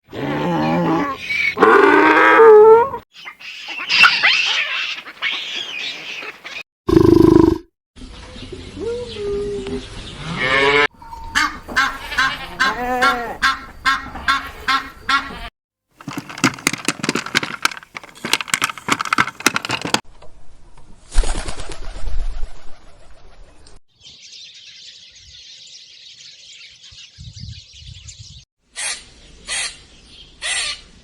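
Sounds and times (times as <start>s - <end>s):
birds calling: 3.1s - 7.5s, 11.0s - 15.5s, 24.0s - 31.0s.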